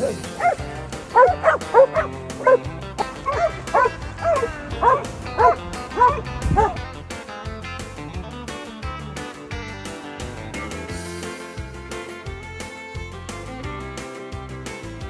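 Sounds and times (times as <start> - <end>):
dog yipping: 0.0 - 6.8
country music with guitar: 0.0 - 15.0.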